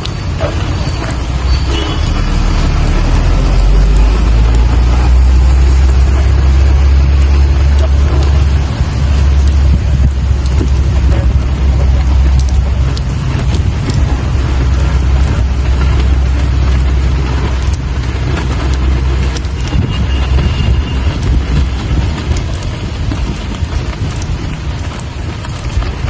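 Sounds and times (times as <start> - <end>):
deep low rumble: 0.0 - 26.0
steady rain falling: 0.0 - 26.0.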